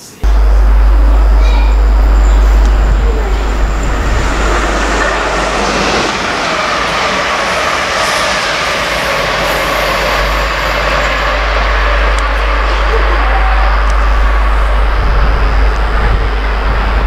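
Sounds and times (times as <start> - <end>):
train rushing past: 0.0 - 17.0
wind rumble on microphone: 0.2 - 6.1, 11.4 - 17.0.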